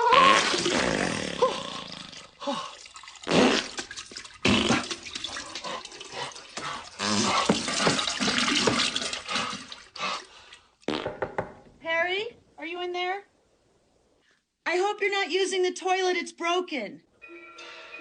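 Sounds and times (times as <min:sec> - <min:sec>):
toilet water gurgling: 0:00.1 - 0:10.5.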